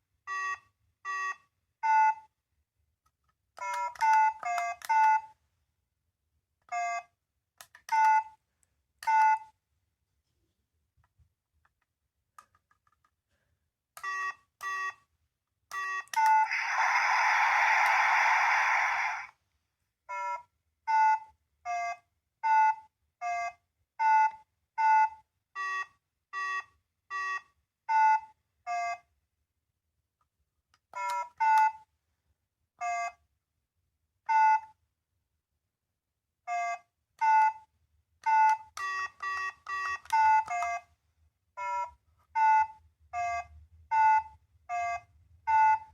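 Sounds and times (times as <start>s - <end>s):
electronic toy beeping tune: 0.3s - 2.3s, 3.6s - 5.4s, 6.7s - 7.2s, 14.0s - 15.0s, 15.7s - 19.3s, 20.1s - 29.1s, 32.8s - 33.2s, 34.3s - 34.8s, 36.5s - 40.9s, 41.6s - 45.9s
harsh hiss: 16.5s - 19.3s.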